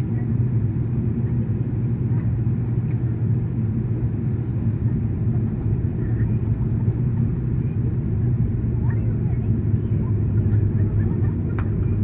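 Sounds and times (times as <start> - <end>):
airliner engine rumble: 0.0 - 12.0.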